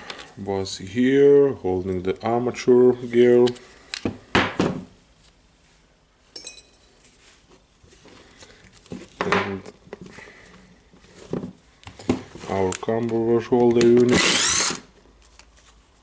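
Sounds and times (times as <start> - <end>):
metallic ring: 6.3 - 7.0.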